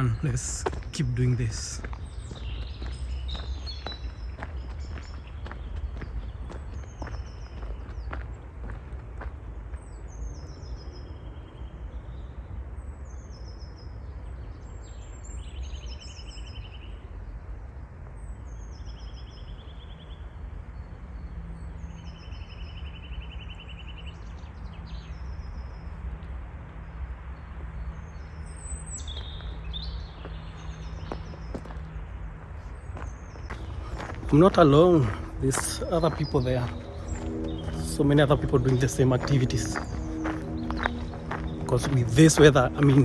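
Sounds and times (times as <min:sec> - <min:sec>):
steady low rumble: 0:00.0 - 0:09.8, 0:33.5 - 0:43.0
songbird singing: 0:00.0 - 0:12.4, 0:28.0 - 0:32.0, 0:32.6 - 0:43.0.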